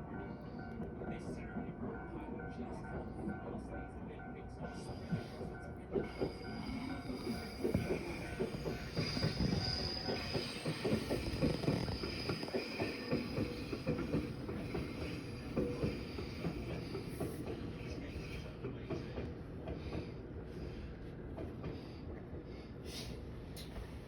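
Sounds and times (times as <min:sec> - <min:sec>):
train wheels clattering: 0:04.9 - 0:22.5
high wheel squeal: 0:06.1 - 0:16.8.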